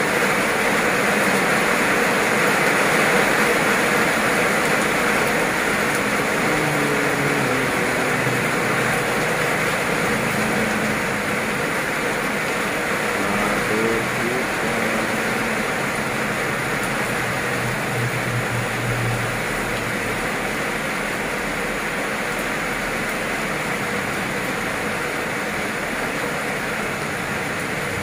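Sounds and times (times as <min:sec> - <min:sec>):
heavy rain on pavement and water: 0:00.0 - 0:28.0.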